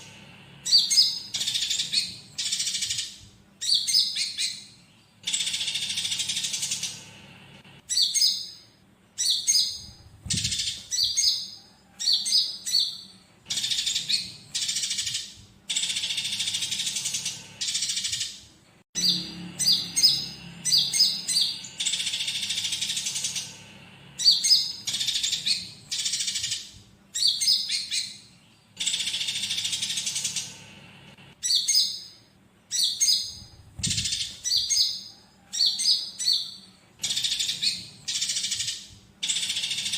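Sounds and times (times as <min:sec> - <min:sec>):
sparrows chattering: 0:00.0 - 0:07.2, 0:07.8 - 0:30.8, 0:31.4 - 0:39.9
bulbul song: 0:00.0 - 0:39.9.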